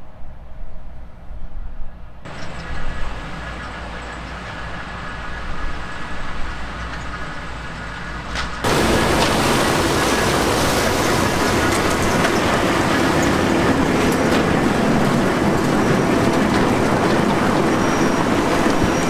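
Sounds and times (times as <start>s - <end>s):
diesel farm machinery running: 2.3s - 19.0s
dense rattling noise: 8.6s - 19.0s.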